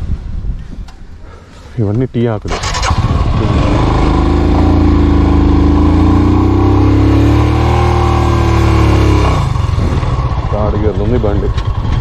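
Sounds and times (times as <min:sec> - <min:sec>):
vehicle engine running: 0:02.5 - 0:12.0.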